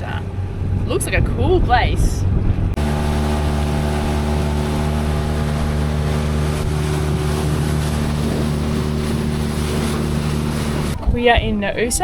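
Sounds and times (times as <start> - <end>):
boat engine humming: 0.0 - 12.0
wind: 0.0 - 12.0
water rushing: 2.8 - 11.2.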